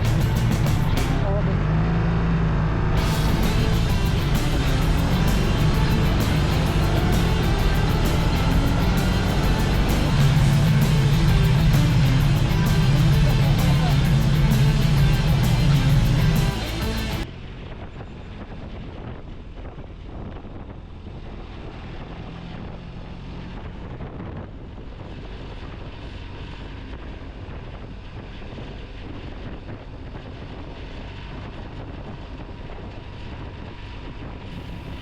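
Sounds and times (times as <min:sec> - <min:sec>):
motorcycle engine hum: 0:00.0 - 0:35.0
wind rush on microphone: 0:17.2 - 0:35.0.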